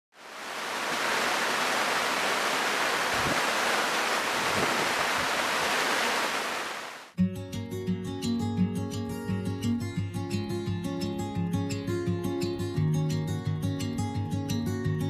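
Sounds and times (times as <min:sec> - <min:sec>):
heavy rain falling: 0:00.1 - 0:07.1.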